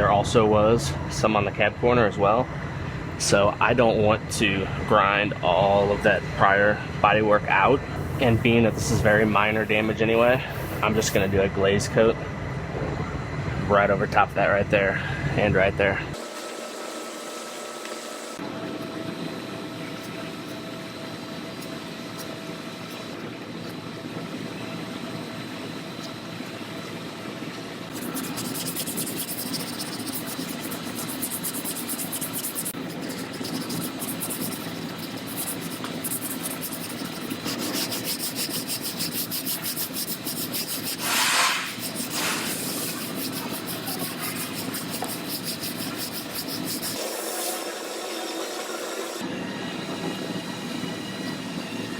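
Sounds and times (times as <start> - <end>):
scraping on sheet metal: 27.9 - 47.5.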